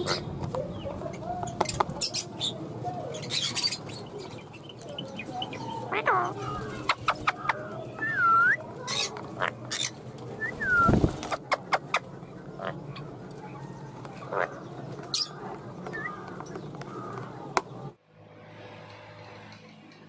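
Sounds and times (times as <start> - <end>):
birds chirping: 0.0 - 18.0
whistled bird calls: 7.1 - 9.1, 9.8 - 11.0, 15.2 - 16.3.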